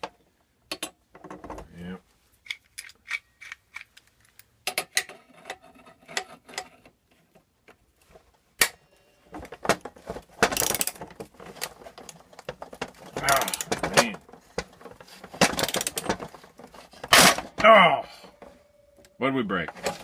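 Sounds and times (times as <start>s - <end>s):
metal clicks and ratcheting: 10.5s - 11.0s, 12.8s - 14.1s.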